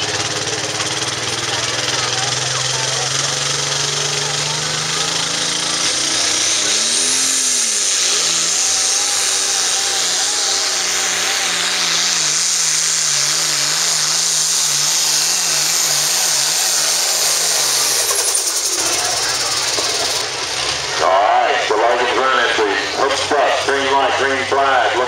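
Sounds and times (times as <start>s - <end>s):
tractor diesel engine running: 0.0s - 25.0s
high steady whine: 5.2s - 25.0s.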